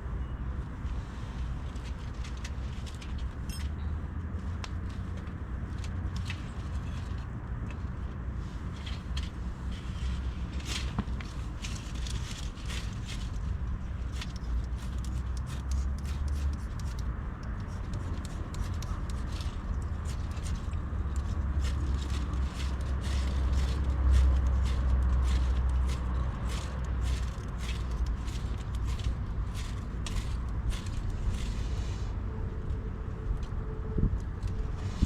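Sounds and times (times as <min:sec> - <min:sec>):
steady low rumble: 0:00.0 - 0:35.0
campfire twigs crackling: 0:09.0 - 0:31.9.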